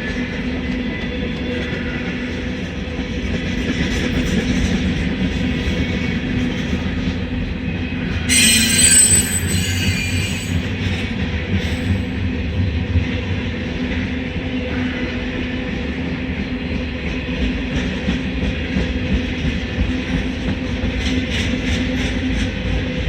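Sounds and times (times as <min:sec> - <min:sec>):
freight train rumbling past: 0:00.0 - 0:23.0
train wheel squealing: 0:08.0 - 0:12.2.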